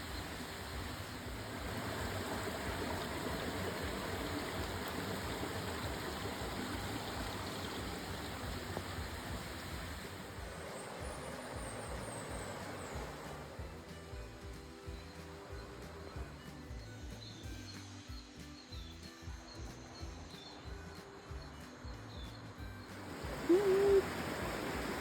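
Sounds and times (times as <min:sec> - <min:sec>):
stream water rushing: 0:00.0 - 0:16.4, 0:22.8 - 0:25.0.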